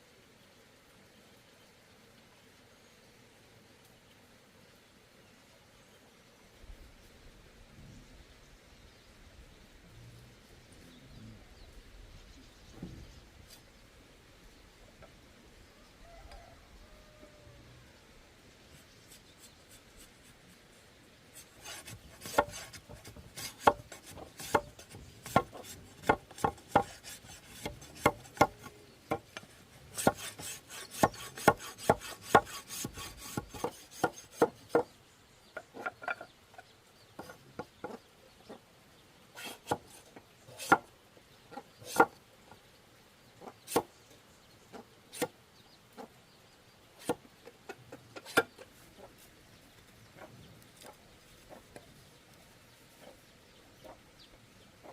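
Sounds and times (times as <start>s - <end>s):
scraping on bamboo: 12.8s - 13.8s, 18.6s - 38.6s, 39.3s - 40.9s, 41.5s - 42.6s, 43.4s - 44.0s, 44.7s - 46.2s, 47.0s - 54.0s
hand tool knocking bamboo: 22.2s - 29.4s.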